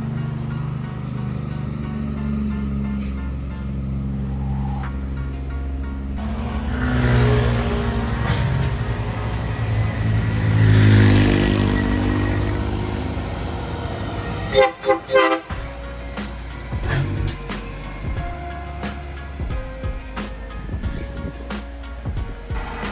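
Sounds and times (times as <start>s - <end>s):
heavy truck engine passing: 0.0s - 22.7s
truck horn blasts: 5.1s - 22.0s.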